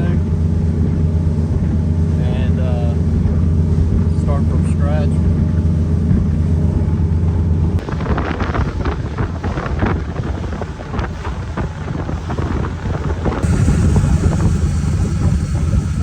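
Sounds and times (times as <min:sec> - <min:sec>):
boat engine running: 0:00.0 - 0:08.7, 0:12.1 - 0:16.0
wind buffeting microphone: 0:00.0 - 0:16.0.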